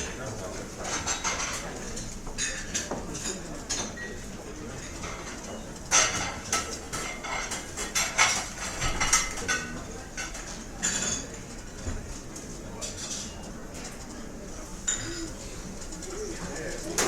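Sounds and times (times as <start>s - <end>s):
low murmur of room noise: 0.0s - 17.0s
cutlery and dishes clinking: 0.8s - 11.7s, 12.4s - 14.2s.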